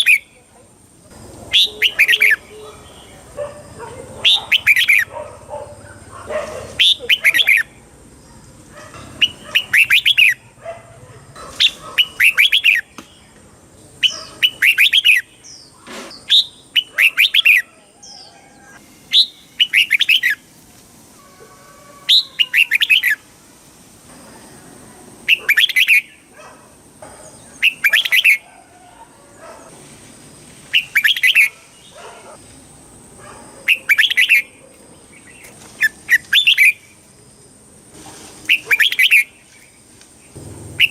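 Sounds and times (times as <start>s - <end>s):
bird singing warbling phrases: 0.0s - 0.5s, 1.5s - 5.1s, 6.7s - 8.5s, 9.1s - 10.6s, 11.6s - 13.4s, 14.0s - 20.4s, 22.0s - 23.2s, 25.2s - 26.3s, 27.5s - 28.4s, 30.7s - 32.1s, 33.6s - 37.0s, 38.5s - 40.9s.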